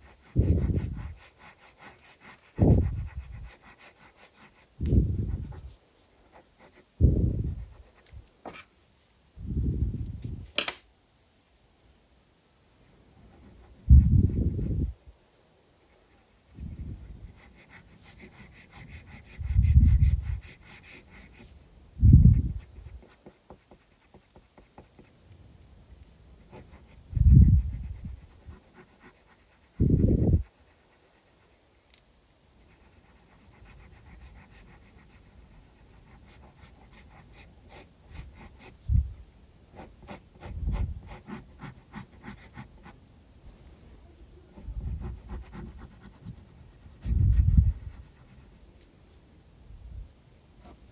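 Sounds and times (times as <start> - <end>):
pencil scratching on paper: 0.0 - 8.6, 12.6 - 15.0, 15.8 - 25.1, 26.4 - 31.6, 32.6 - 38.8, 39.7 - 43.0, 44.5 - 48.6.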